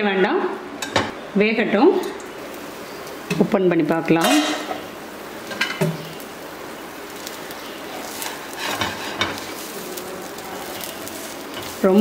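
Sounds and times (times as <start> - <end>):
batter sizzling in oil: 2.2 - 12.0
spatula scraping pan: 7.8 - 12.0.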